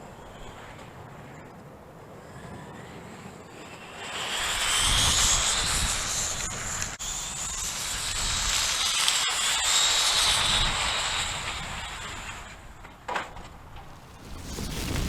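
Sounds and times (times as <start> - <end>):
rc car motor whine: 2.2 - 12.8.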